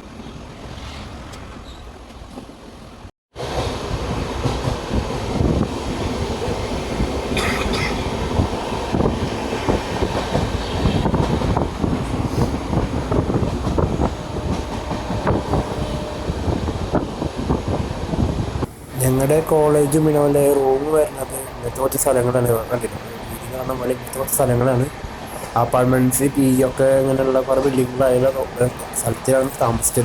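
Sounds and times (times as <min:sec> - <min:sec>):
train rumble: 0:00.0 - 0:30.0.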